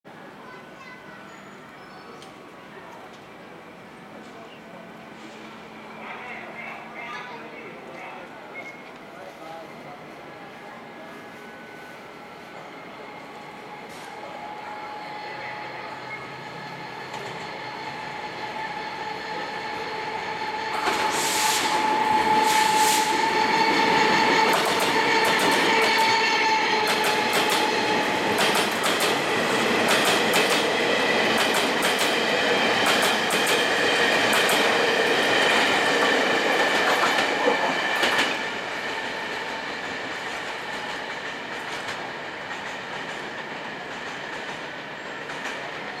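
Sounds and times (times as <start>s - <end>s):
train rumble: 10.2s - 46.0s.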